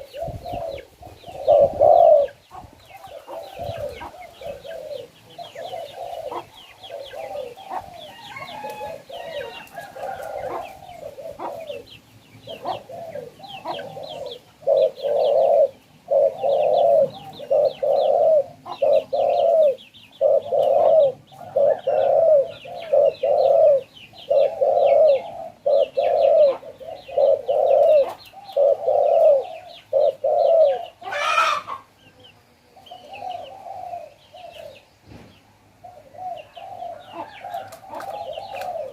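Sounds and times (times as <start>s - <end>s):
dove cooing: 0.0s - 34.9s, 35.6s - 38.9s.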